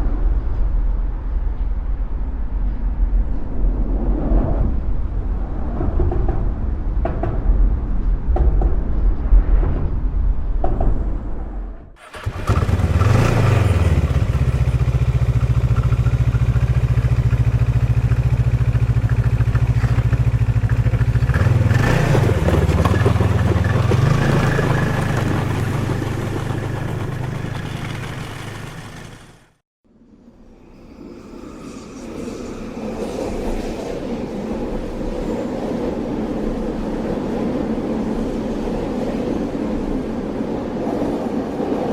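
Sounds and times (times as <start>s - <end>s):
vehicle engine running: 12.0s - 29.6s.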